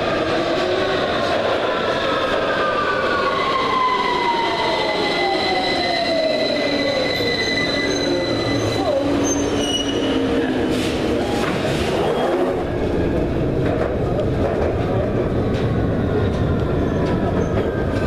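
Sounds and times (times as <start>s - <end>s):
high squeal from wheels: 2.4s - 11.0s
continuous train rumble: 8.7s - 18.0s.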